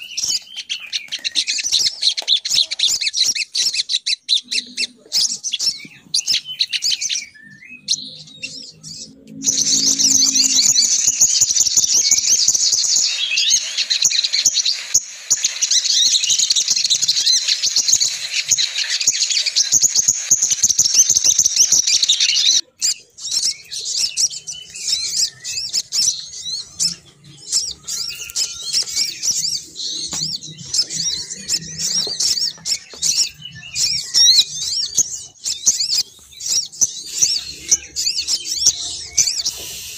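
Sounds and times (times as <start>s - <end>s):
bird lure chattering calls: 9.3s - 39.9s.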